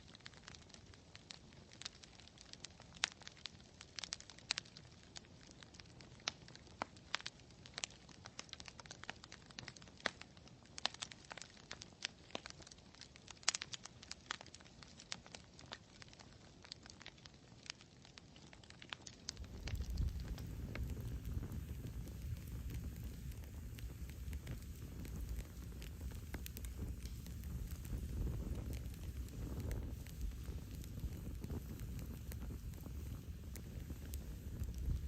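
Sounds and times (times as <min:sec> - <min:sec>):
campfire crackling and popping: 0:00.0 - 0:35.0
faint low hiss: 0:19.0 - 0:35.0.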